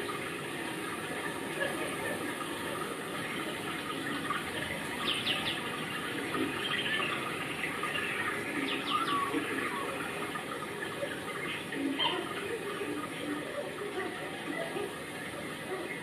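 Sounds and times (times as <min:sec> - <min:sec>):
steady rain falling: 0:00.0 - 0:16.0
bird chirping: 0:04.9 - 0:05.7, 0:06.5 - 0:10.2.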